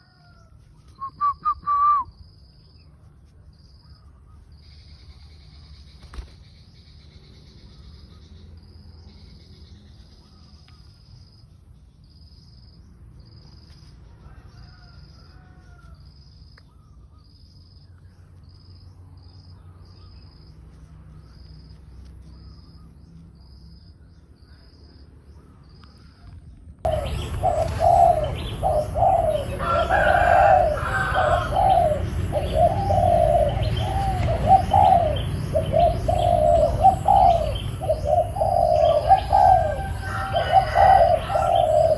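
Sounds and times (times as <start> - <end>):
faint bird calls: 24.4 - 41.9.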